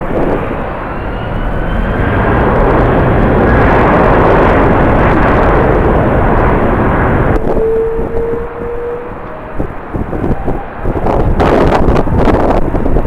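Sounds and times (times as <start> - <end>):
jet engines rushing: 0.0 - 13.0
wind buffeting microphone: 0.0 - 13.0
faint high whine: 0.1 - 12.4.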